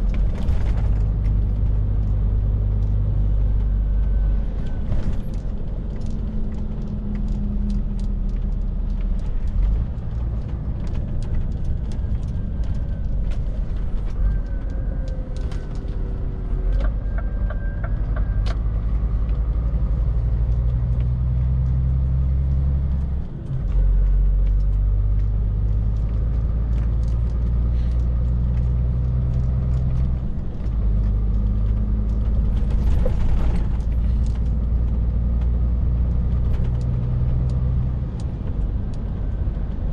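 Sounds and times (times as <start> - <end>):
lorry engine running: 0.0 - 39.9
road noise: 0.0 - 39.9.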